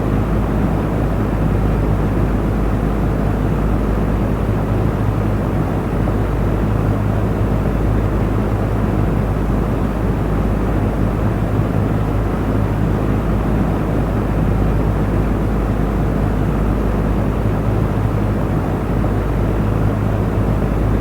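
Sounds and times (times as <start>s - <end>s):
fan motor hum: 17.5s - 21.0s
fan air rush: 20.5s - 21.0s.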